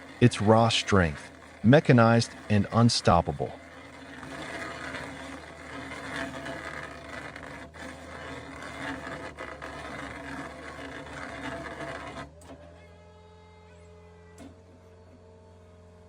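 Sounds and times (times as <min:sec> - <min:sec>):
mechanical grinding: 0:00.0 - 0:12.4.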